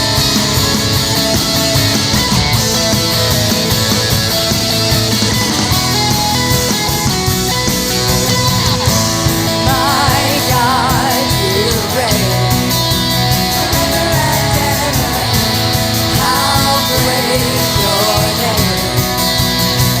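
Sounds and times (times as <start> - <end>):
vibrato melody line: 0.0 - 19.5
upbeat rock band playing: 0.0 - 20.0
person singing: 9.3 - 19.5.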